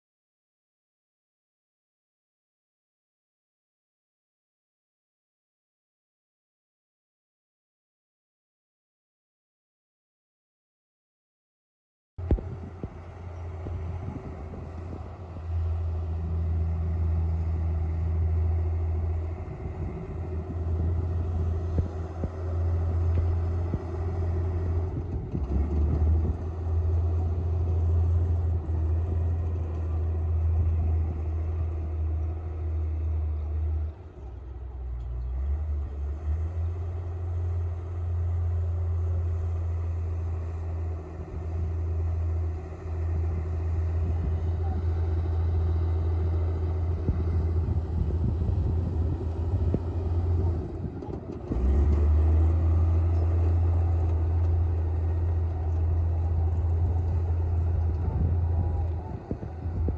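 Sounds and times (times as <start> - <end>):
bulldozer diesel engine working: 12.2 - 59.9.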